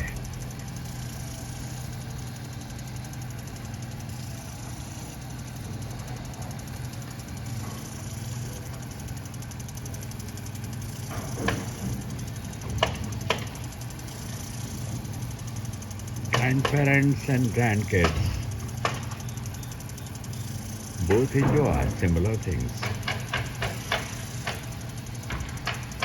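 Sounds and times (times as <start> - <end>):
low motor hum: 0.0 - 26.0
fast even ticking: 13.2 - 25.9.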